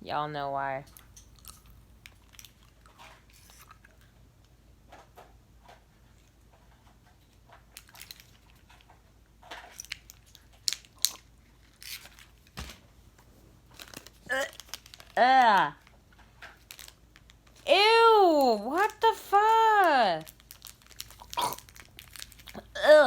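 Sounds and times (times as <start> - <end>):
person chewing gum: 0.9 - 4.0, 20.3 - 23.0.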